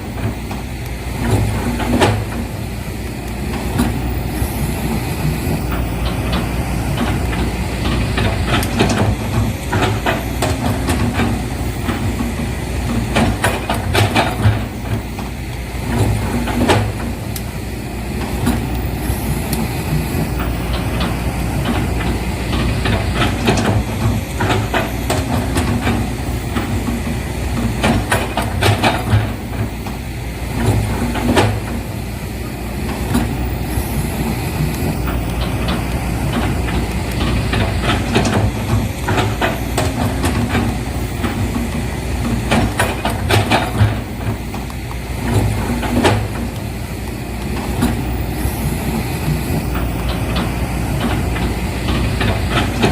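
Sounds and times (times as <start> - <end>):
vehicle engine rumble: 0.0 - 52.9
clanks and knocks: 5.3 - 17.5, 19.5 - 30.0, 34.6 - 46.6, 47.4 - 52.9.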